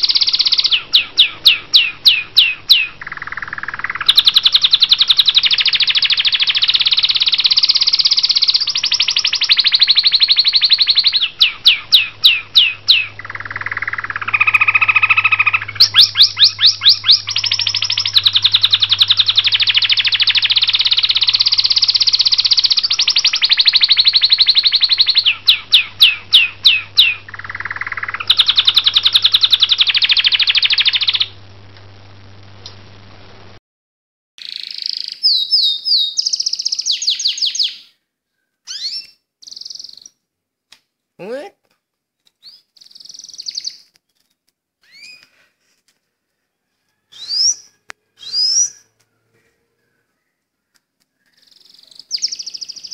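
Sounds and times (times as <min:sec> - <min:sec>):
songbird singing buzzing trills: 0:00.0 - 0:31.4, 0:34.4 - 0:37.9, 0:42.4 - 0:43.8, 0:51.2 - 0:52.9
faint low hum: 0:09.9 - 0:33.6.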